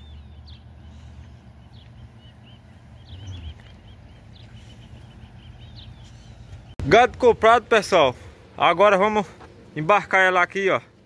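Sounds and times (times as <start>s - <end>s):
small birds chirping: 0.0s - 6.8s
low steady outdoor rumble: 0.0s - 11.0s.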